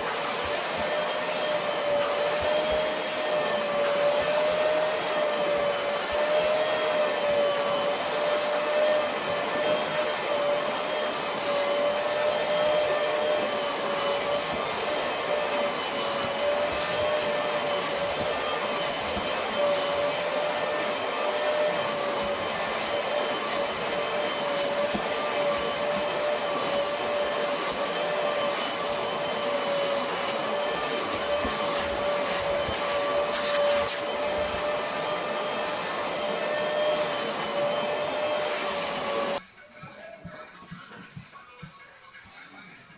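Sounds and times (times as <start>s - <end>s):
vacuum cleaner motor whining: 0.0s - 39.4s.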